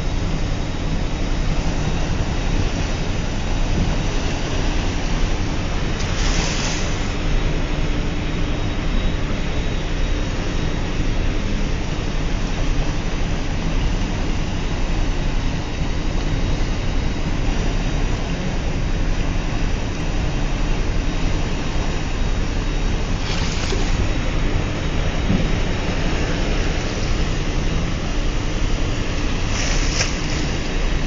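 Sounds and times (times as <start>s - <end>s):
ship machinery rumble: 0.0s - 31.0s
water rushing in wake: 21.4s - 31.0s.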